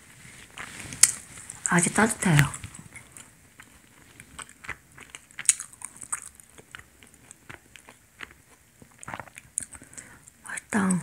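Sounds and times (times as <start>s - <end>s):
person chewing: 0.4s - 1.7s, 2.4s - 11.0s.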